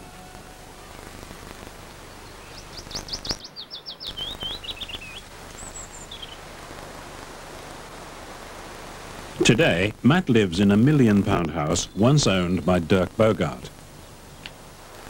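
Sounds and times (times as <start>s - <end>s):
background hiss: 0.0s - 15.0s
songbird singing: 1.9s - 6.6s, 9.4s - 14.6s.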